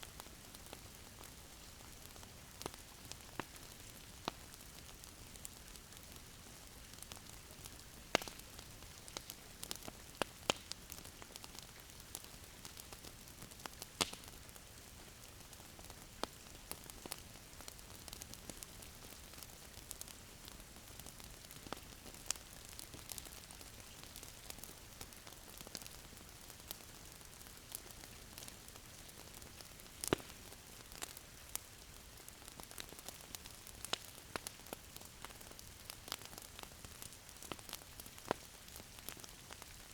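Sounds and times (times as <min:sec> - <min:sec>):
wood fire crackling: 0:00.0 - 0:39.9
fire pops and snaps: 0:02.1 - 0:31.7, 0:32.4 - 0:39.9.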